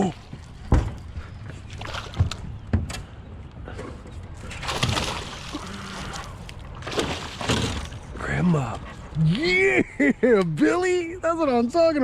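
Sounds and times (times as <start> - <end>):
water splashing: 4.4 - 8.2.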